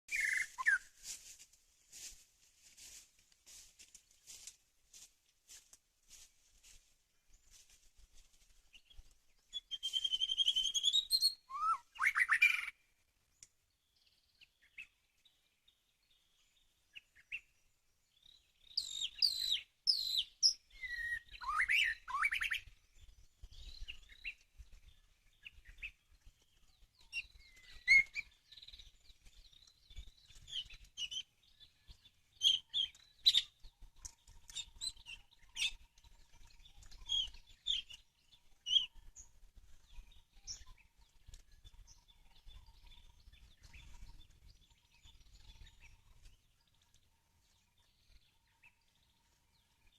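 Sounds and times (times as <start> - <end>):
bird chirps and call notes: 0.1 - 1.0, 9.5 - 12.8, 18.3 - 22.8, 27.0 - 46.3
bird song whistled phrases: 0.1 - 1.0, 9.5 - 12.8, 18.7 - 22.7, 27.1 - 28.9, 38.6 - 39.0.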